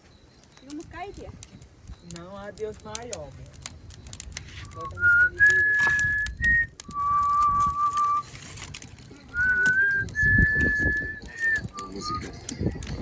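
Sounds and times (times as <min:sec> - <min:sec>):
person whistling a slow tune: 0:04.8 - 0:08.3, 0:09.3 - 0:12.4.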